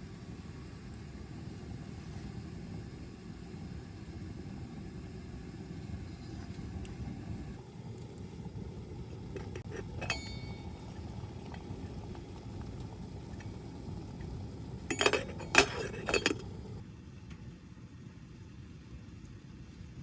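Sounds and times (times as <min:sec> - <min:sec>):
dishes clinking: 0:09.9 - 0:10.7, 0:14.9 - 0:16.6.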